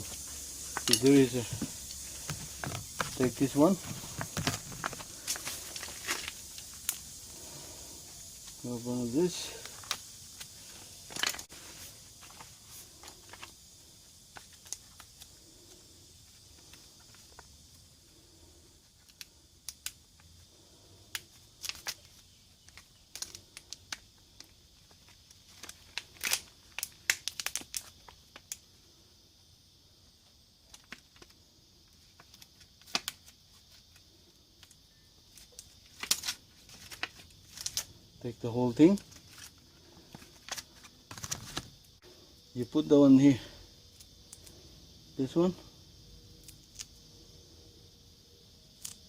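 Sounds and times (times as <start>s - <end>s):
faint steady hiss: 0.0s - 49.0s
packaging crinkling and rustling: 0.1s - 7.0s, 9.6s - 13.5s, 21.6s - 24.0s, 24.8s - 28.4s, 35.4s - 37.9s, 38.9s - 41.8s.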